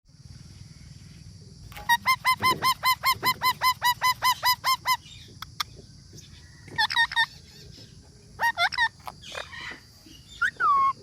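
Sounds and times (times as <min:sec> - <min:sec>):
parrot squawking: 0:01.8 - 0:05.6, 0:06.8 - 0:07.5, 0:08.4 - 0:11.0.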